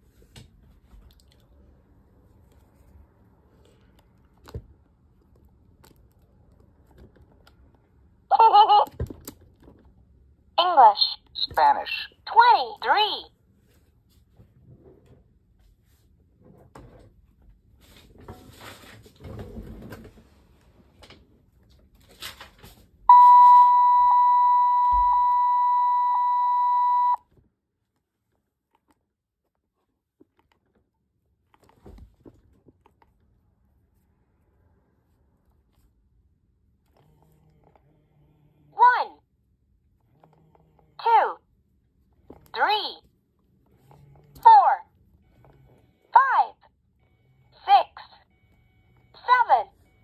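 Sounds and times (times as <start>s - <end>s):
toy speaker steady beep: 10.9s - 13.2s, 23.1s - 27.2s.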